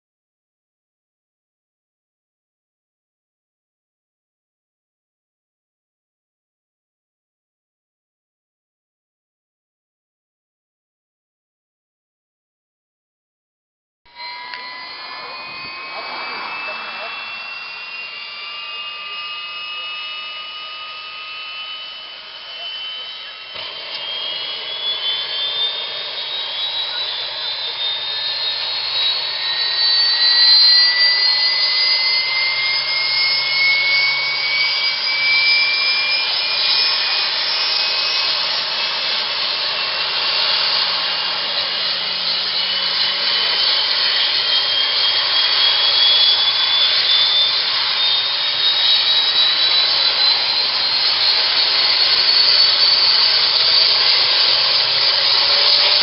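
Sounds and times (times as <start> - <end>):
helicopter turbine whine: 14.1 - 56.0
loud rush of noise: 14.5 - 18.8.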